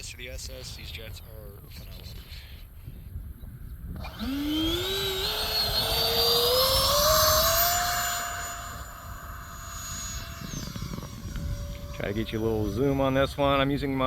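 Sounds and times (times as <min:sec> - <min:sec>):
electric ducted fan whine: 0:03.8 - 0:14.0.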